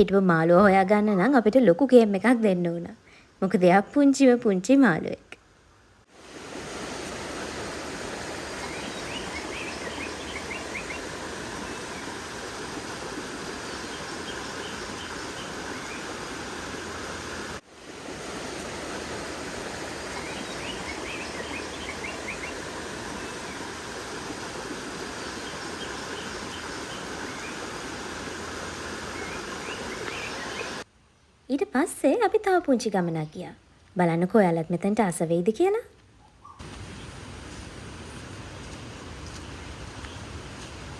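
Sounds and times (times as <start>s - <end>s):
stream flowing over stones: 6.1s - 30.8s.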